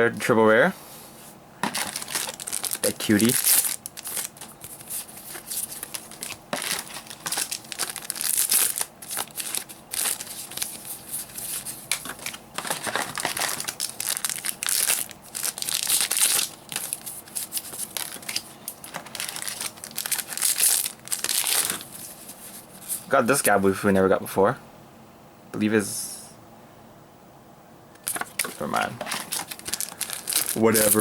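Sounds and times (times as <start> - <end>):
foil wrappers crinkling and tearing: 1.6 - 23.1, 28.0 - 31.0.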